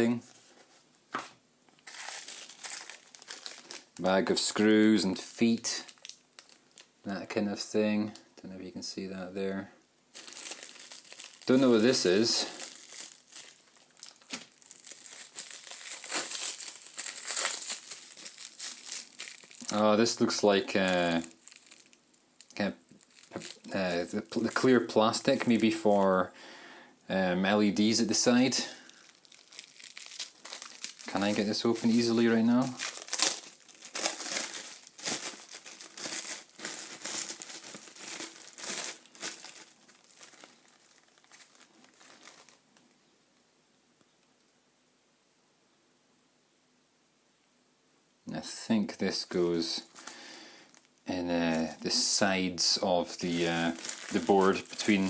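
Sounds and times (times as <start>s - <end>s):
plastic packaging crinkling: 1.8s - 6.9s, 10.1s - 26.1s, 27.9s - 42.9s, 49.6s - 55.0s.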